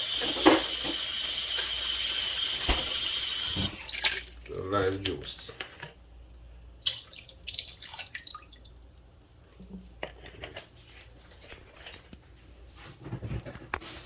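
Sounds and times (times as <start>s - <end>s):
water dripping and splashing: 1.5s - 4.5s, 6.8s - 9.0s.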